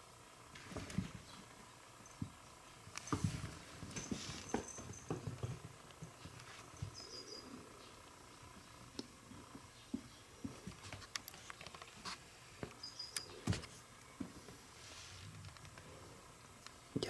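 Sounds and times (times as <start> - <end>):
kitten paws thumping and scratching: 3.0 - 7.2, 9.9 - 12.2.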